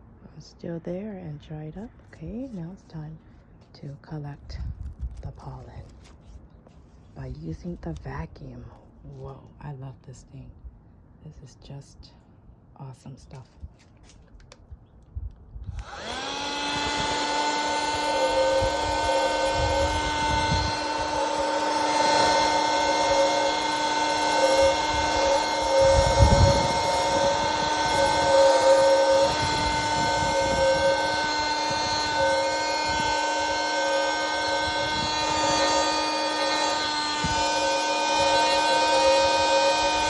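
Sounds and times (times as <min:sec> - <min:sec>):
vacuum motor humming: 0:15.7 - 0:40.0.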